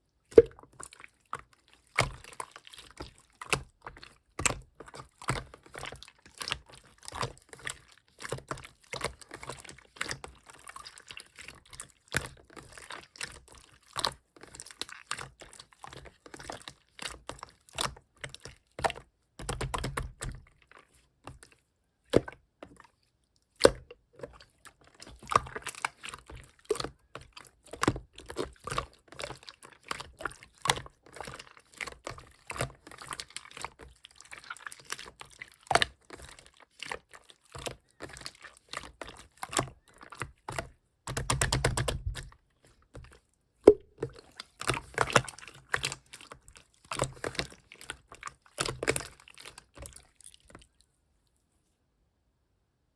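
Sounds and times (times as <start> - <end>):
slime squishing with sticky clicks: 11.1 - 50.8.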